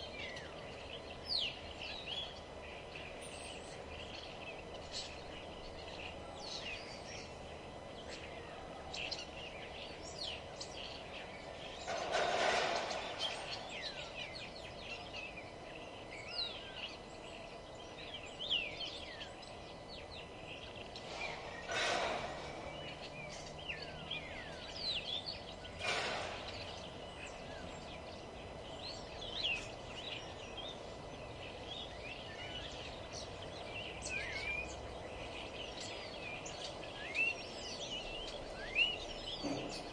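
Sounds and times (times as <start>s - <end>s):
small birds chirping: 0.0s - 39.9s
loud rough sounds: 21.0s - 23.3s.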